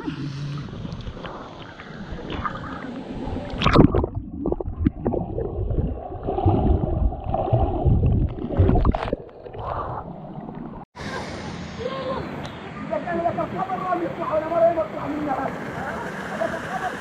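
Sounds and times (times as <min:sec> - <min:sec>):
water splashing and gurgling: 0:00.0 - 0:10.8.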